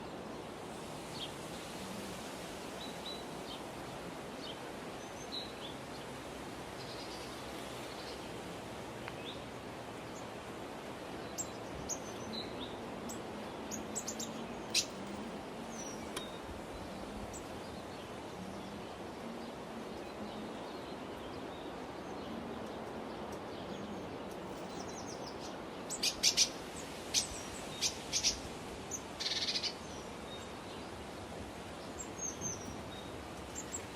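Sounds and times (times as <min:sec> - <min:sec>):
outdoor background hiss: 0:00.0 - 0:33.9
birds chirping: 0:11.2 - 0:31.2.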